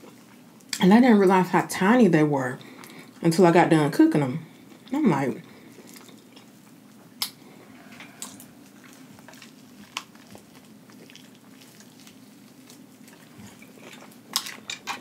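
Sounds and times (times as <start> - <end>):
low steady hum: 0.0 - 15.0
food crunching: 4.6 - 15.0.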